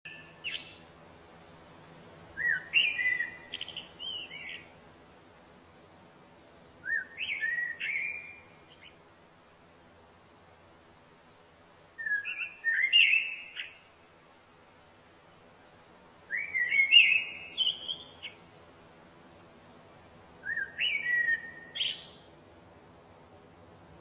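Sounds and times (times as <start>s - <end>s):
songbird singing whistled notes: 0.1s - 1.0s, 2.4s - 5.0s, 6.8s - 9.0s, 9.8s - 14.9s, 16.2s - 22.8s.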